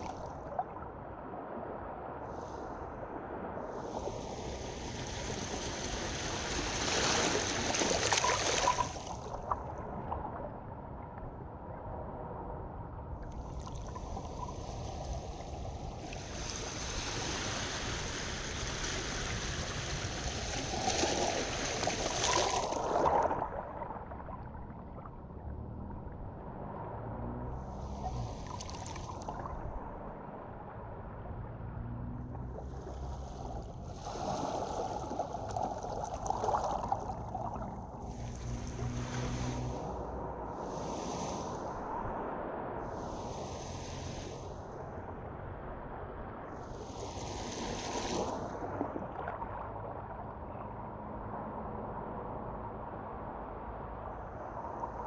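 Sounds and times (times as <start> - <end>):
water washing toward shore: 0.0 - 0.8, 3.6 - 10.4, 13.3 - 24.5, 26.6 - 30.1, 32.3 - 45.0, 46.5 - 50.0.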